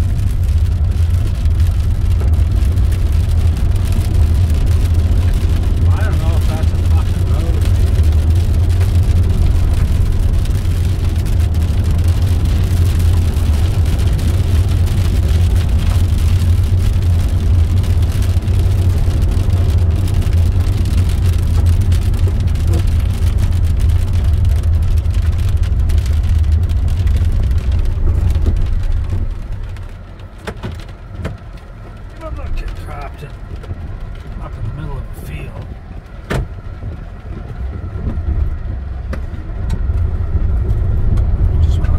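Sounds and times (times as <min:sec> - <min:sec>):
tyres rumbling on gravel: 0:00.0 - 0:41.9.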